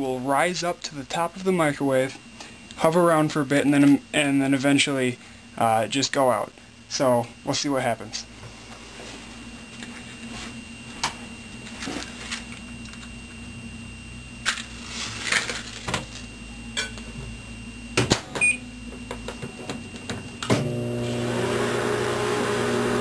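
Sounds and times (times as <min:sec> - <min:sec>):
faint steady hum: 0:00.0 - 0:21.0
keypad beep: 0:18.4 - 0:18.6.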